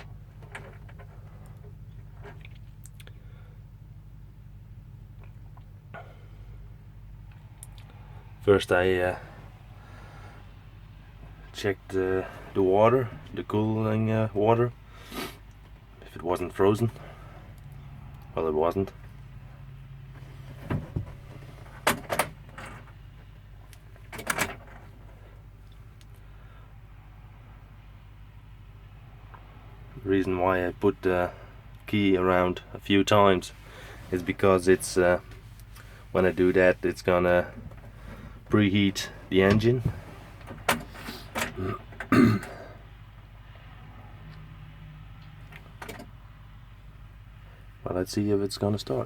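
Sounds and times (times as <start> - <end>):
faint low hum: 0.0 - 49.0
man clearing his throat: 41.6 - 42.8.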